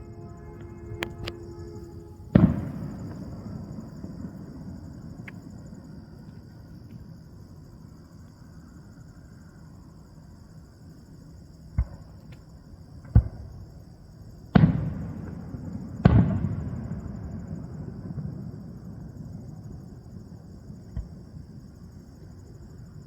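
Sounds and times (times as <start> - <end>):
fireworks bursting: 0.0 - 5.7
rolling rumble of fireworks: 0.0 - 9.2, 11.6 - 23.0.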